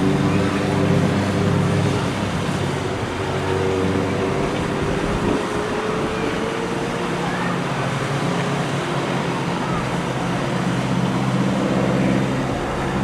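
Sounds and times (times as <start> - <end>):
biplane radial engines droning: 0.0 - 13.0.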